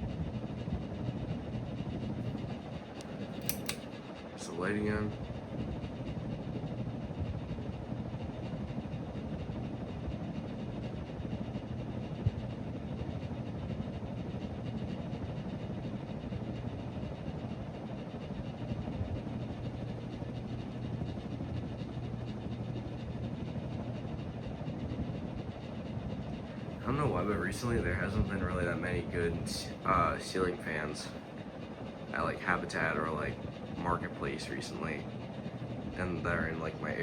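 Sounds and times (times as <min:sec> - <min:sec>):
ceiling fan motor buzz: 0:00.0 - 0:37.0
sharp click: 0:03.4 - 0:03.8
rush of air from fan blades: 0:22.7 - 0:37.0.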